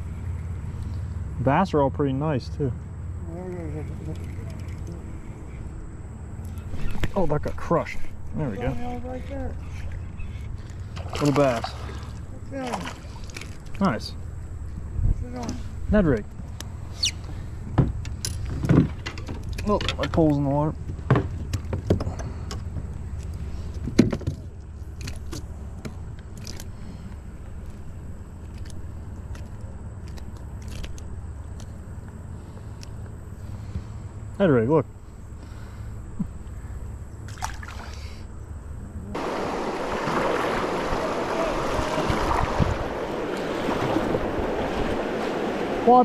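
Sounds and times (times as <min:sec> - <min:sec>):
fishing gear knocking and rattling: 0:17.8 - 0:26.7
whitewater rushing: 0:39.2 - 0:46.0.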